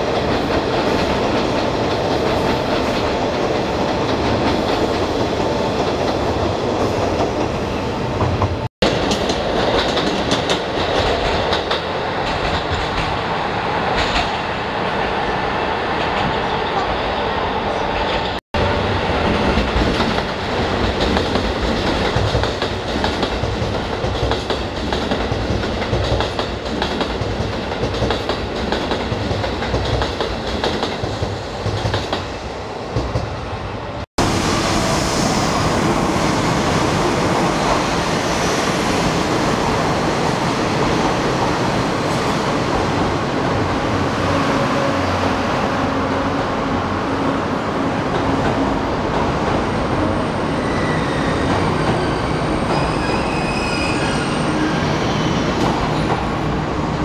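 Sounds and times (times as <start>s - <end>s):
train coaches rumbling: 0.0s - 57.0s
train wheel clatter: 8.2s - 13.2s, 13.9s - 14.4s, 19.2s - 32.3s.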